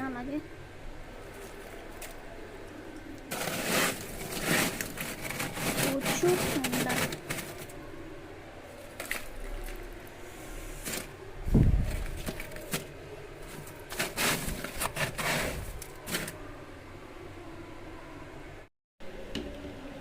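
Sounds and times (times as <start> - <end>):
ice chunks knocking and scraping: 3.3 - 7.8, 8.8 - 10.0, 10.8 - 16.4.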